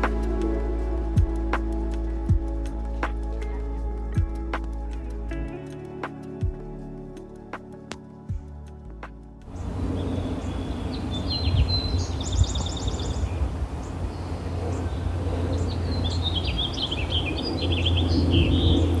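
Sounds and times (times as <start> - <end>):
low outdoor rumble: 0.0 - 19.0
small birds chirping: 9.5 - 19.0.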